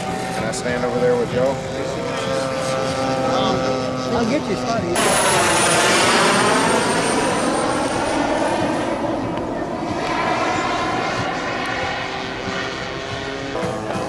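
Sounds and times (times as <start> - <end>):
model airplane propeller drone: 0.0 - 14.0.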